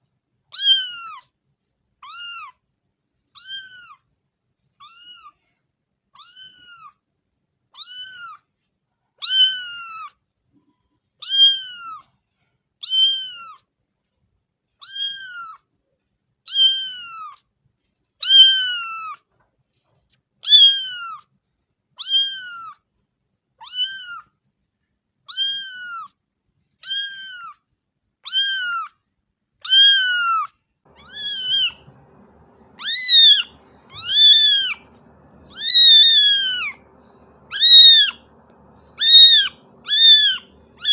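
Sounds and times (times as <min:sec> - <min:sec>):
faint background noise: 0:00.0 - 0:40.9
cat meowing: 0:00.6 - 0:01.3, 0:02.0 - 0:02.6, 0:03.4 - 0:04.0, 0:04.8 - 0:05.4, 0:06.2 - 0:07.0, 0:07.8 - 0:08.4, 0:09.2 - 0:10.1, 0:11.2 - 0:12.0, 0:12.8 - 0:13.6, 0:14.8 - 0:15.6, 0:16.5 - 0:17.4, 0:18.2 - 0:19.2, 0:20.4 - 0:21.2, 0:22.0 - 0:22.8, 0:23.6 - 0:24.3, 0:25.3 - 0:26.1, 0:26.8 - 0:27.6, 0:28.2 - 0:28.9, 0:29.6 - 0:40.9.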